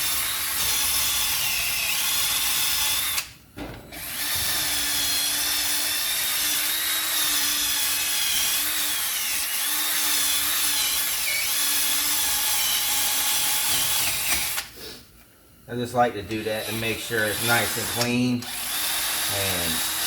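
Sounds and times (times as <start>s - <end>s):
power wire wheel scrubbing metal: 16.3s - 20.0s.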